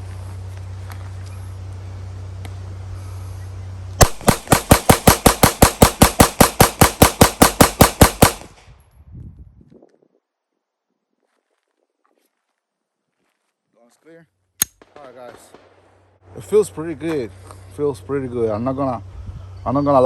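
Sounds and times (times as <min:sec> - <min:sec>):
rapid pistol gunshots: 0:04.0 - 0:08.6, 0:14.8 - 0:16.0.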